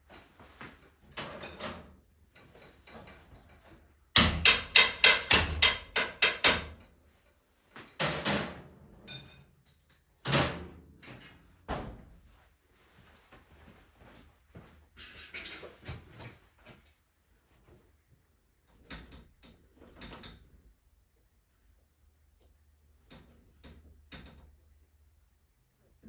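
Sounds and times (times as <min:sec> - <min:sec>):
sharp knocks: 0:04.2 - 0:06.7.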